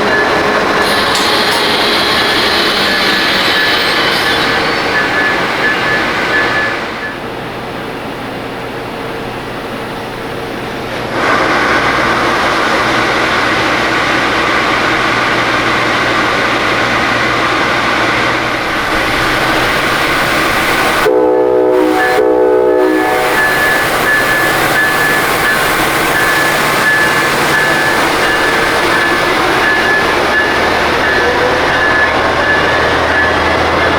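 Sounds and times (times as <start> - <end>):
passenger train rumbling past: 0.0 - 33.9
locomotive horn blasts: 21.0 - 25.6.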